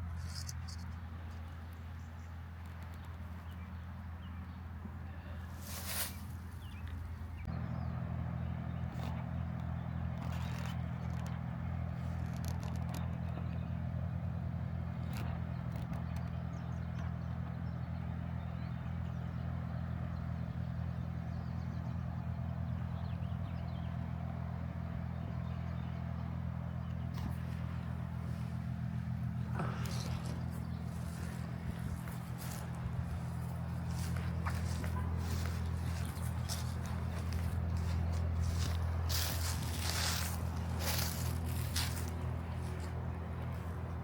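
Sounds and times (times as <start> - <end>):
faint clicks and scrapes: 0.0 - 1.8, 10.1 - 11.4, 12.0 - 13.4
motor humming: 24.8 - 44.0.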